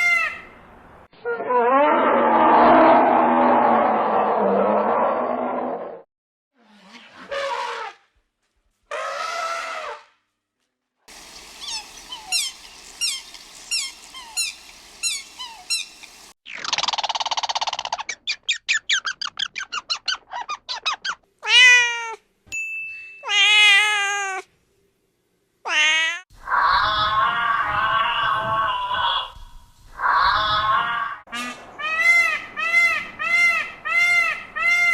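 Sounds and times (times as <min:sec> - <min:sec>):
cat meowing: 0:25.7 - 0:26.2.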